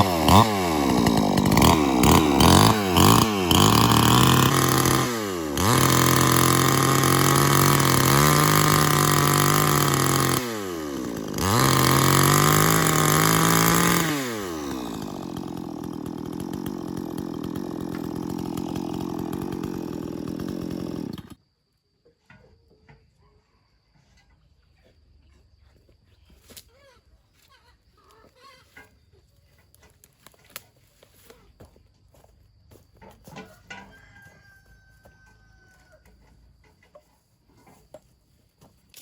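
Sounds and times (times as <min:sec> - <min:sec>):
chainsaw revving and idling: 0:00.0 - 0:21.4.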